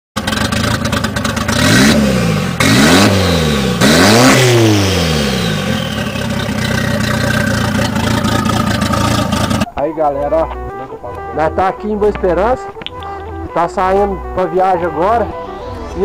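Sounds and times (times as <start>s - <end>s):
car engine revving: 0.2s - 9.7s.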